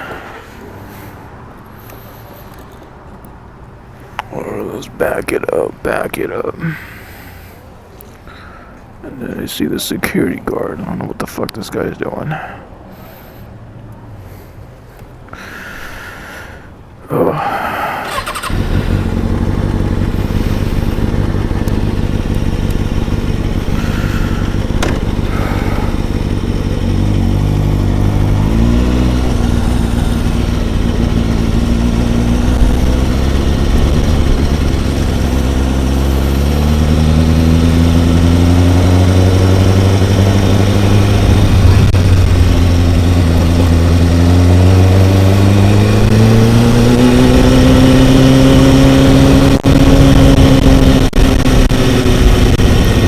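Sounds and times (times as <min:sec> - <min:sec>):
motorcycle engine revving: 0:18.0 - 0:53.0.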